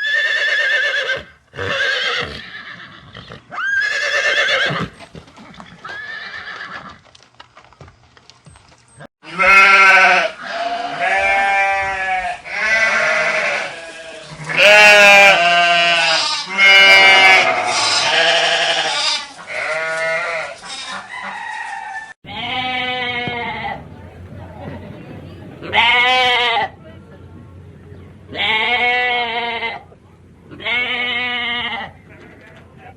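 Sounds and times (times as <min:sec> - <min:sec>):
livestock bleating: 0:09.2 - 0:21.1, 0:22.3 - 0:23.8, 0:25.7 - 0:26.8, 0:28.3 - 0:29.9, 0:30.5 - 0:32.6.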